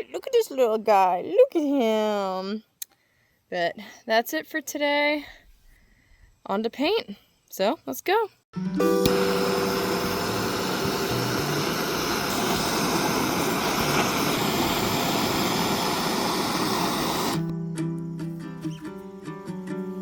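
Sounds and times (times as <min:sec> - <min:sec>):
guitar music: 0:08.6 - 0:15.7
propane torch hissing: 0:08.8 - 0:17.5.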